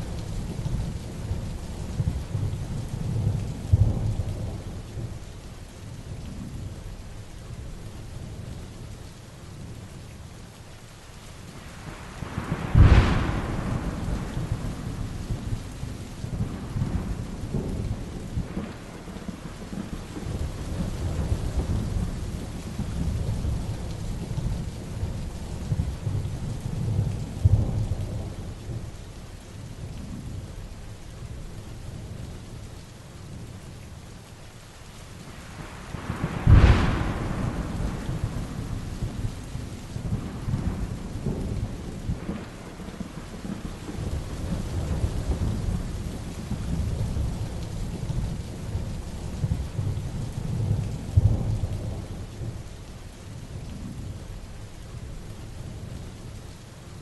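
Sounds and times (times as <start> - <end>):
heavy rain falling: 0.0 - 57.0
thunder rumbling: 11.7 - 29.0, 35.3 - 52.8
sharp thunderclaps: 12.2 - 24.7, 35.6 - 52.6.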